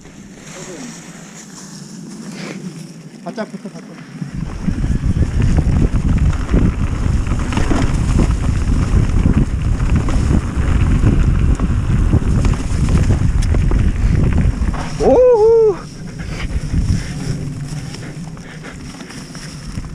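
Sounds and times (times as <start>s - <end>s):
wind buffeting microphone: 4.2s - 19.9s
bike knocks and rattles: 4.4s - 15.0s.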